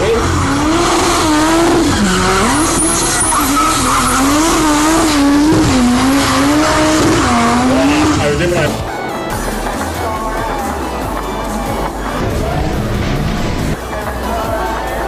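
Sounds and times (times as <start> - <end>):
car engine revving: 0.0 - 9.8, 11.0 - 14.1
tyres squealing and skidding: 0.0 - 10.9.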